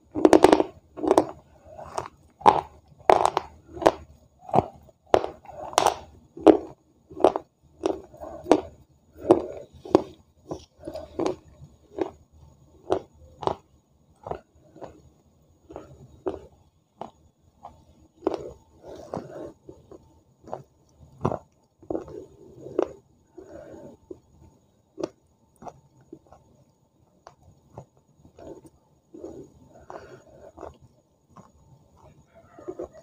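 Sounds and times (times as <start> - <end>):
person chewing food: 0.0 - 33.0
lip-smacking and crunching: 29.8 - 32.9.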